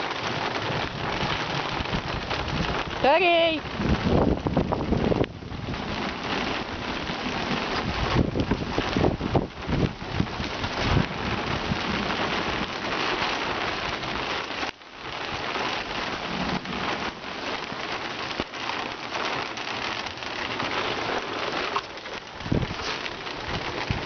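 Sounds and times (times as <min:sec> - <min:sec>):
heavy rain pattering: 0:00.0 - 0:24.0.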